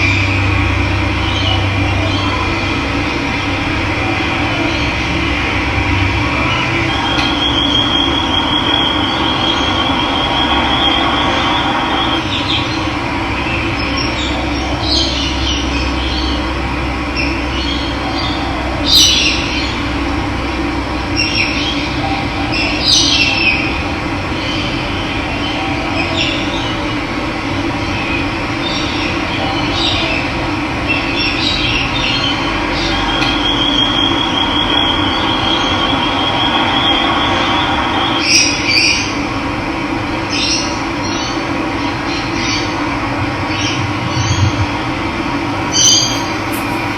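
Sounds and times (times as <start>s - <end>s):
birds chirping: 45.6s - 46.9s
thin high steady tone: 45.6s - 46.9s.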